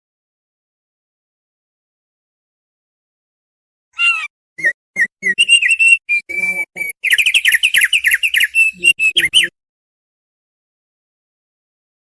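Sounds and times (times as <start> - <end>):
bird singing whistled notes: 4.0 - 9.5.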